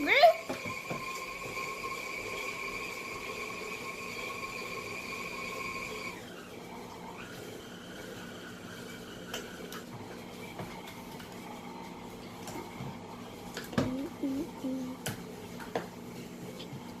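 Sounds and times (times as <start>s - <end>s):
electric mixer motor whining: 0.0s - 11.7s.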